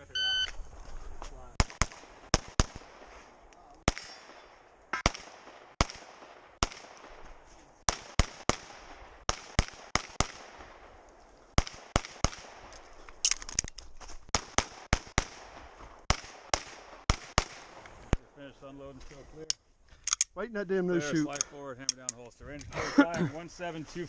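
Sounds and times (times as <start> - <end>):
pistol shots with echo: 1.6 - 3.1, 3.8 - 7.2, 7.9 - 11.0, 11.6 - 12.7, 14.3 - 17.8.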